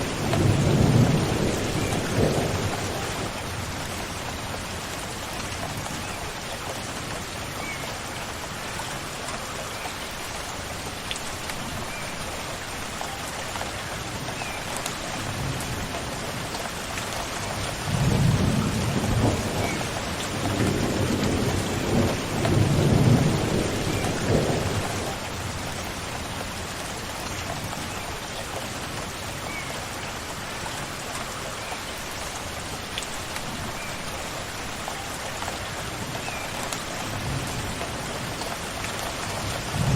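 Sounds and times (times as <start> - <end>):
thunder rumbling: 0.0 - 3.9, 17.9 - 25.7, 39.6 - 39.9
rain falling: 0.0 - 39.9.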